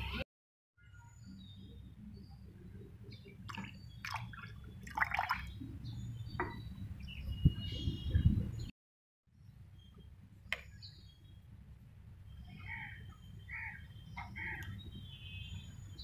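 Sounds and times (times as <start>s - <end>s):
birds chirping: 1.0s - 8.7s, 12.2s - 16.0s.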